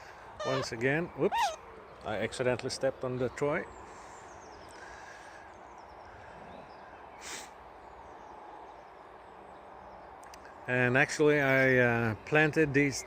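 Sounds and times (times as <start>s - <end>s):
faint bird chirps: 0.0s - 1.7s
low wind noise: 0.0s - 12.3s.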